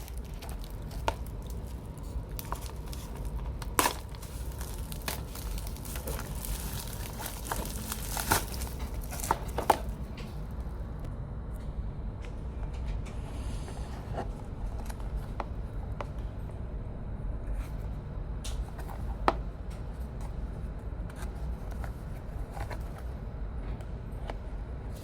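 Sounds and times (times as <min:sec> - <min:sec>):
package and keychain handled: 0:00.0 - 0:10.0
steady low rumble: 0:00.0 - 0:18.8.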